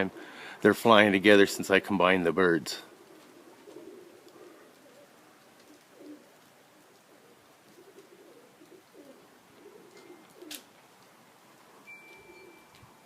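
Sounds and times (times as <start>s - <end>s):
pigeons cooing: 2.8s - 13.0s.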